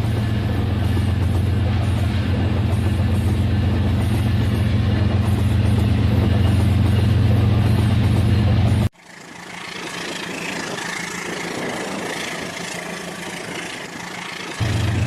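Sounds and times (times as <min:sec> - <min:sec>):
toy train motor humming: 0:09.0 - 0:15.0.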